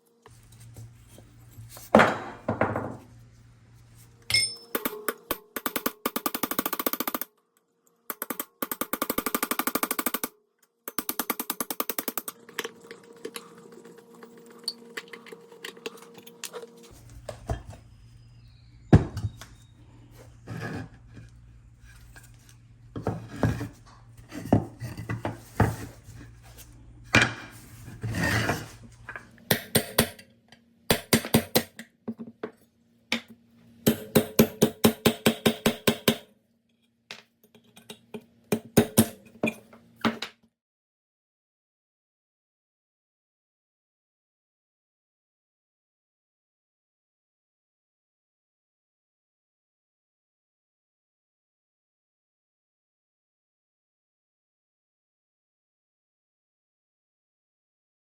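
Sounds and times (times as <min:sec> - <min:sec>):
tools and metal parts clinking: 0:04.2 - 0:05.6.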